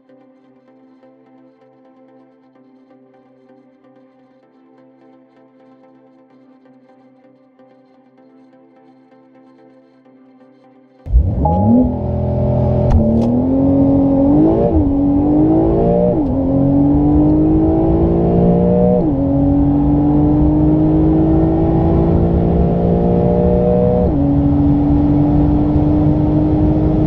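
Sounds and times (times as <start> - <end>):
car engine accelerating: 11.1 - 27.0.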